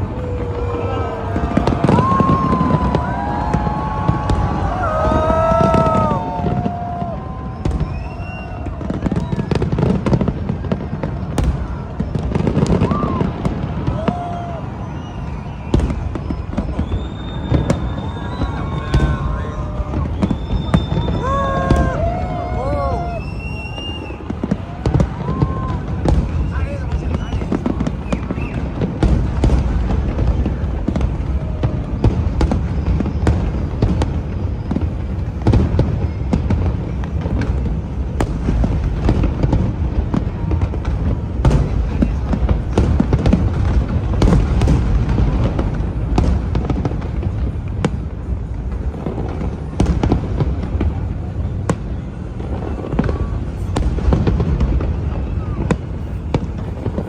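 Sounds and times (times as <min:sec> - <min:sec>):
fireworks bangs: 0:00.0 - 0:57.0.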